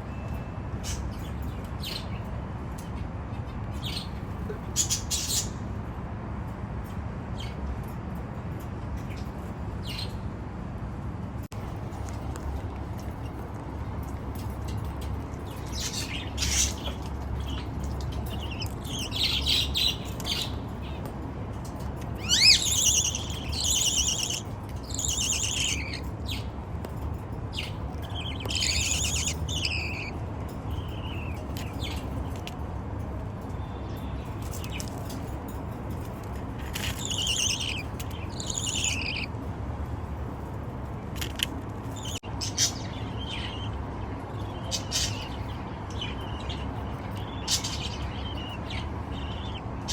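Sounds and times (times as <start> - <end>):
budgie chicks chirping: 15.3 - 21.1, 22.2 - 26.5, 27.6 - 30.2, 36.6 - 39.3, 44.5 - 49.9.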